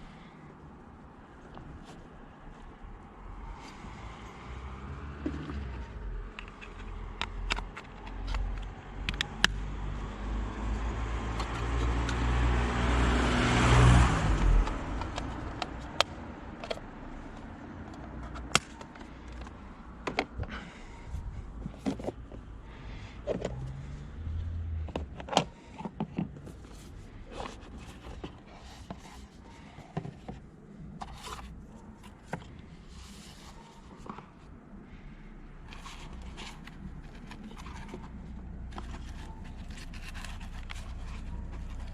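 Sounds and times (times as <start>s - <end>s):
car passing by: 3.3s - 6.0s, 9.7s - 15.0s, 23.4s - 24.9s.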